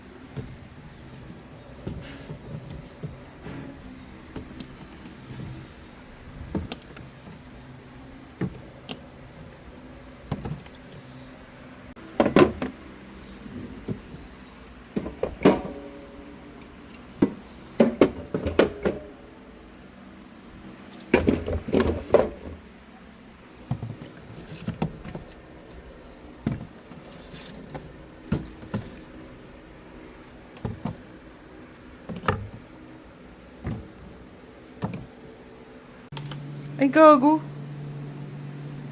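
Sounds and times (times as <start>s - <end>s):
knocks and clunks of items: 0.3s - 5.8s, 10.3s - 11.1s, 12.1s - 12.8s, 14.9s - 16.0s, 16.9s - 19.2s, 21.0s - 22.6s, 23.6s - 25.8s, 26.4s - 29.2s, 30.5s - 31.1s, 32.1s - 32.7s, 33.6s - 34.1s, 34.8s - 35.2s.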